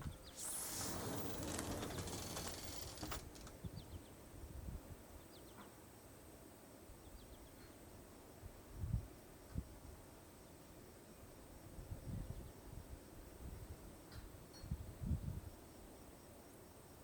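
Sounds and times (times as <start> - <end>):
fire hissing: 0.3 - 3.5.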